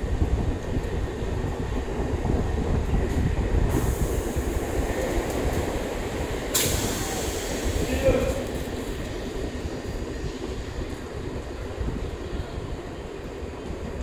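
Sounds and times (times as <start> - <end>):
train wheels rumbling on rails: 0.0 - 14.0
high hiss: 6.4 - 9.8.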